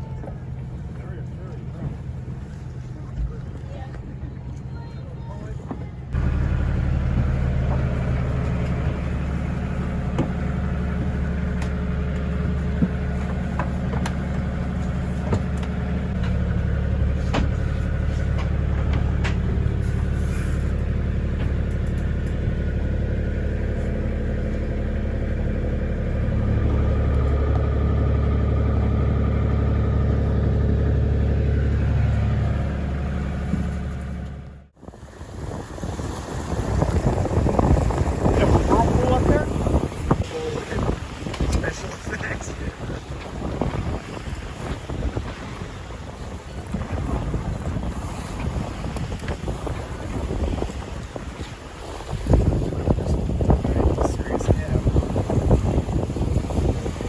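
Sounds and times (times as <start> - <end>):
engine humming: 0.0 - 57.0
light clicks and rattles: 10.1 - 16.6, 17.2 - 22.4.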